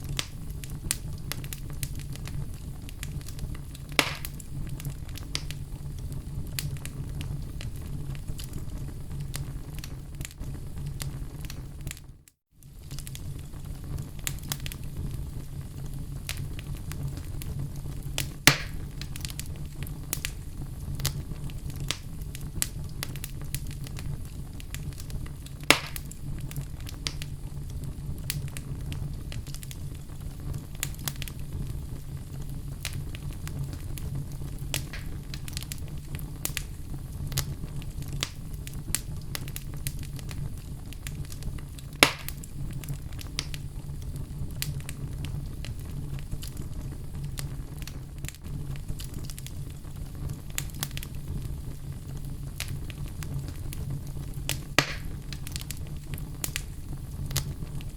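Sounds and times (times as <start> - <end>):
sharp pops of burning logs: 0.0 - 5.6, 14.0 - 14.8, 16.2 - 17.5, 18.2 - 20.4, 21.0 - 31.8, 32.5 - 51.4, 52.5 - 57.9
wood fire crackling: 0.0 - 57.9.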